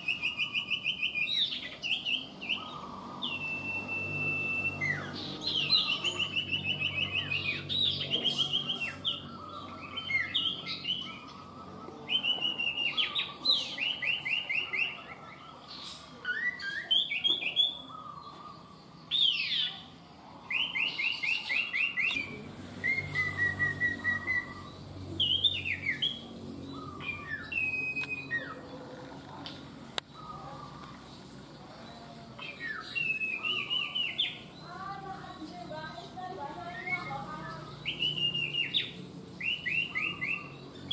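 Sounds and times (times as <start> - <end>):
whistled and chirped bird calls: 0.0 - 19.9, 20.5 - 28.7, 31.8 - 34.6, 36.7 - 40.9
bird trills: 36.6 - 40.9.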